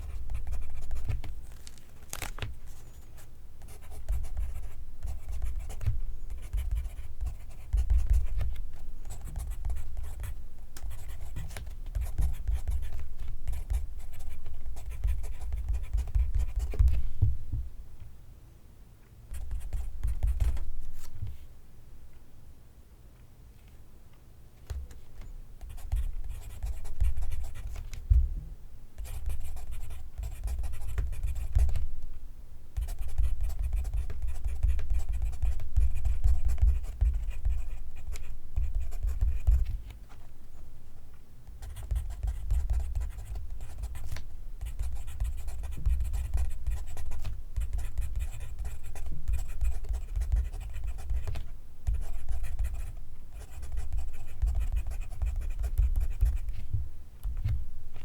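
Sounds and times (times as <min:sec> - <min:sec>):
pencil writing on paper: 0:03.6 - 0:17.0, 0:32.8 - 0:39.6, 0:41.6 - 0:51.3, 0:51.9 - 0:56.5.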